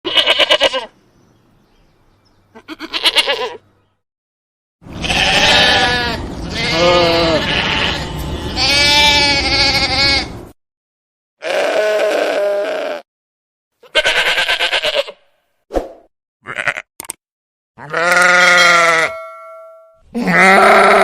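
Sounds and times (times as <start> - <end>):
sheep bleating: 0.0 - 0.9, 2.5 - 3.6, 4.9 - 10.3, 11.4 - 13.1, 13.8 - 15.2, 16.4 - 16.9, 17.8 - 19.2, 20.1 - 21.0.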